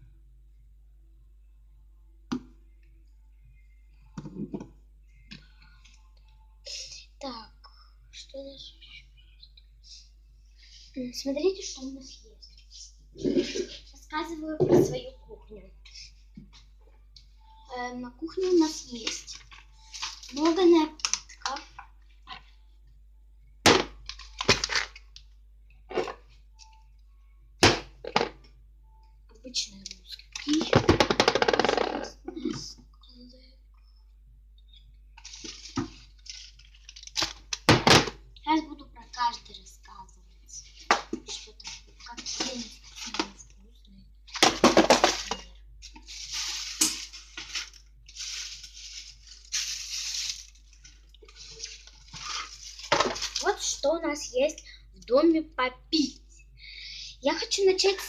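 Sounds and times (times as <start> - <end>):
drink packets crackling and knocking: 18.6 - 21.8, 23.7 - 25.2, 35.2 - 38.1, 44.3 - 53.6.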